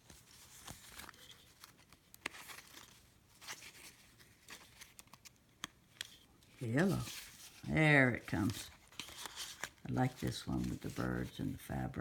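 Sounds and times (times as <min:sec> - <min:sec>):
paper rustling: 0:00.0 - 0:12.0
small clicks and taps: 0:04.9 - 0:06.2.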